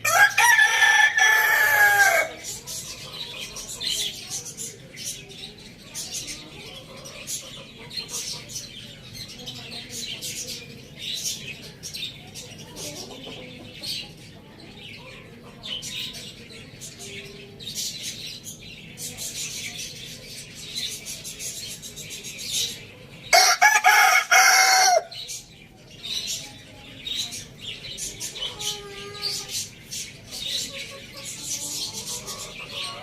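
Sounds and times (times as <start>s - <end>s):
rooster crowing: 0.0s - 2.4s, 23.3s - 25.1s
chicken clucks: 0.1s - 5.3s, 5.9s - 17.9s, 20.0s - 33.0s.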